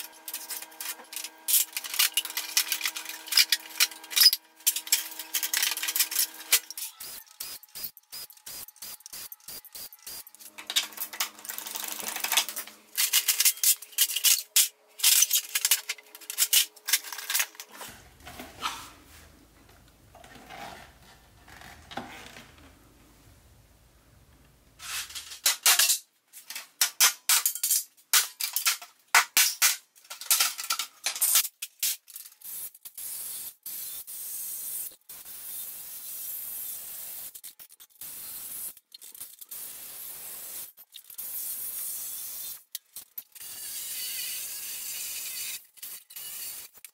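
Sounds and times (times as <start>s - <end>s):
metal and plastic parts clanking: 0.2s - 7.0s, 10.4s - 18.6s, 24.8s - 32.4s.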